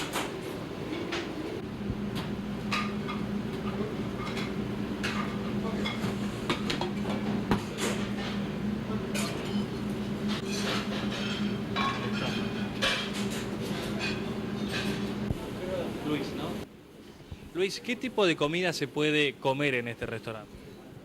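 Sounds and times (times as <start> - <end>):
steady low hum: 0.0 - 17.6
pans and dishes clinking: 9.1 - 15.2.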